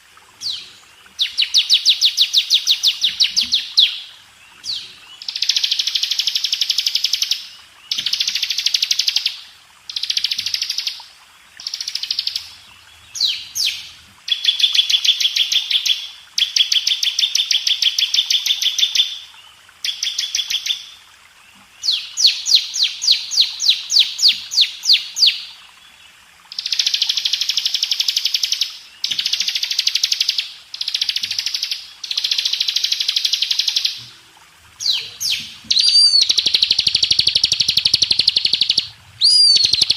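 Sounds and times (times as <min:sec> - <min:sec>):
bird singing buzzy trills: 0:34.8 - 0:39.9.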